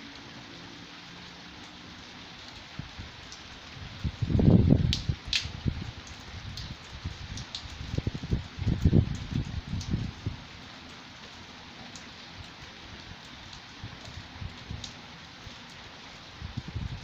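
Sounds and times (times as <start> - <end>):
rain hiss: 0.0 - 17.0
drip ticks: 4.9 - 6.8, 7.4 - 8.0.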